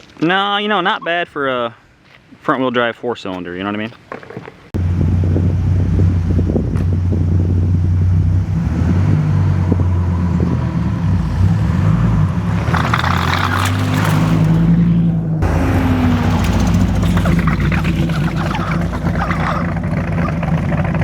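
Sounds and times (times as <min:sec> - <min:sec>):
car engine humming: 0:04.8 - 0:21.0.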